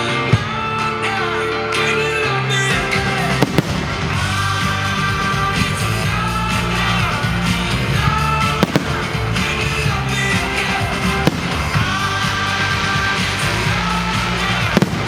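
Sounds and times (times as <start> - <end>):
pop music with singing: 0.0 - 15.0
fireworks bangs: 2.7 - 15.0.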